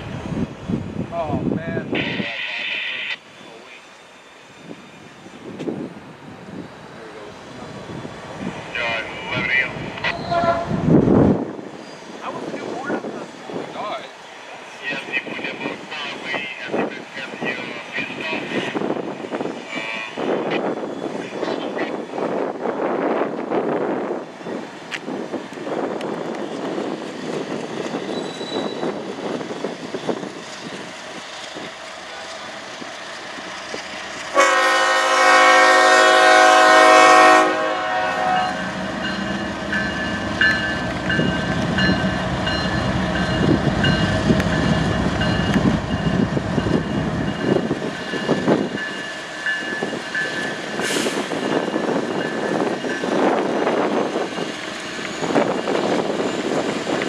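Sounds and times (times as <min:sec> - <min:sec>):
train rumbling past: 0:00.0 - 0:57.0
train horn blast: 0:10.1 - 0:10.9, 0:34.3 - 0:38.9.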